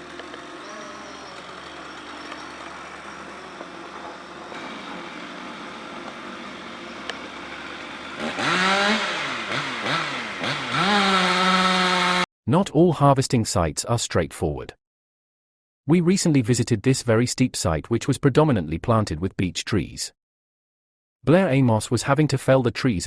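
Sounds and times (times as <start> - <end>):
low engine hum: 0.0 - 12.2
chainsaw revving: 0.0 - 12.3.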